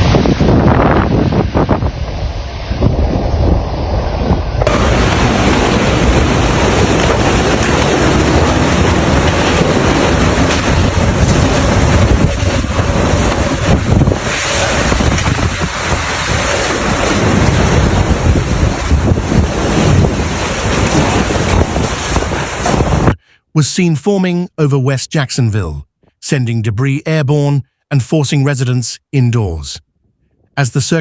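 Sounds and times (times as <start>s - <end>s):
storm wind buffeting microphone: 0.0s - 23.2s.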